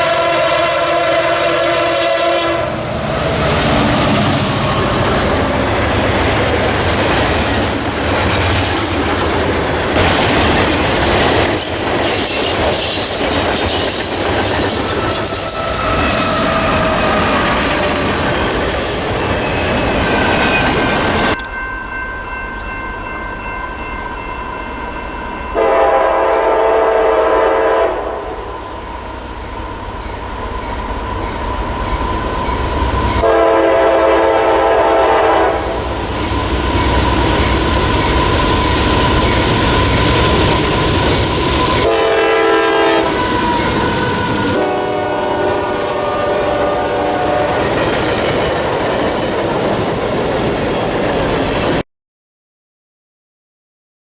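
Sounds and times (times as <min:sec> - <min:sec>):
locomotive horn blasts: 0:00.0 - 0:06.6, 0:15.0 - 0:18.2, 0:25.6 - 0:28.5, 0:33.1 - 0:35.9, 0:38.2 - 0:47.7
moving train rumble: 0:00.0 - 0:51.8.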